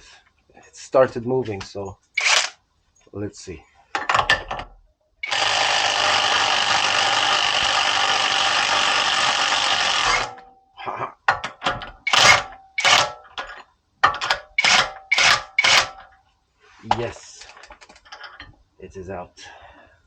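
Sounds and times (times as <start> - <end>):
impact wrench hammering: 5.2 - 10.5, 11.5 - 13.2, 14.0 - 16.1.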